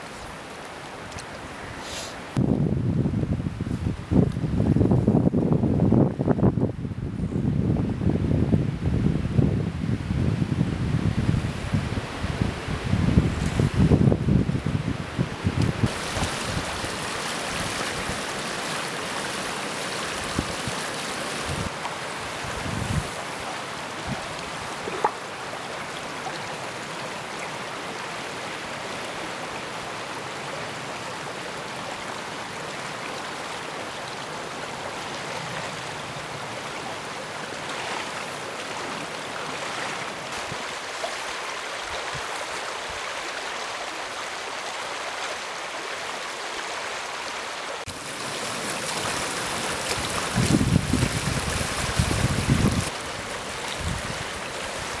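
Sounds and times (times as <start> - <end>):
river water rushing: 0.0 - 2.4, 15.0 - 55.0
wind buffeting microphone: 2.4 - 18.3, 20.1 - 23.3, 48.4 - 55.0.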